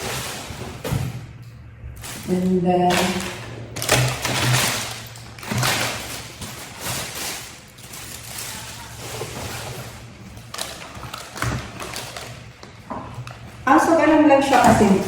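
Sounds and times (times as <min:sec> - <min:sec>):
plastic parts rustling and knocking: 0:02.0 - 0:13.6.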